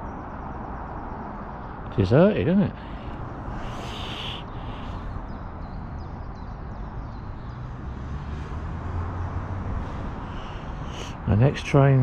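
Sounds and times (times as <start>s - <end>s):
low rumble and hiss: 1.6s - 5.5s.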